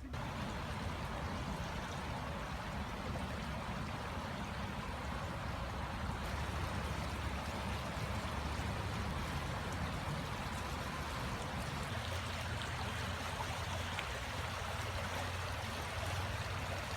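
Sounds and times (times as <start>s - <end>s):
stream water rushing: 0.0s - 16.9s.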